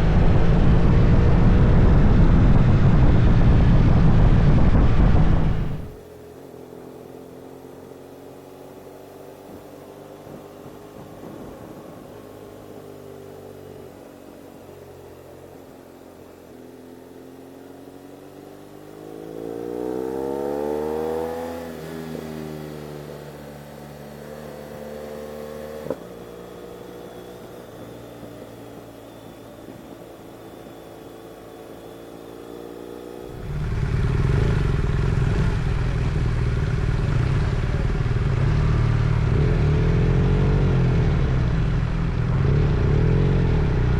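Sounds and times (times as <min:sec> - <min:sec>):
loud low rumble: 0:00.0 - 0:06.0, 0:33.2 - 0:43.9
motorcycle engine running: 0:00.0 - 0:12.1, 0:33.1 - 0:43.9.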